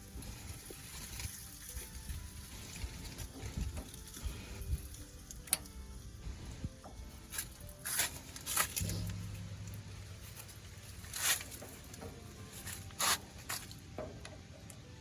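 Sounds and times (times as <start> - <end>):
low hum: 8.8 - 11.9.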